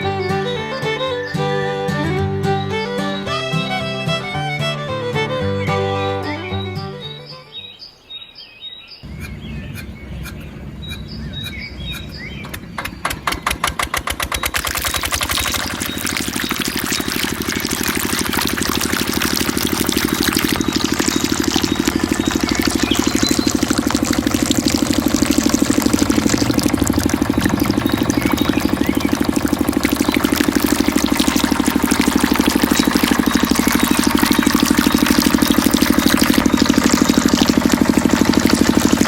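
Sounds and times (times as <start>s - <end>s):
diesel engine starting and running: 9.0s - 39.0s.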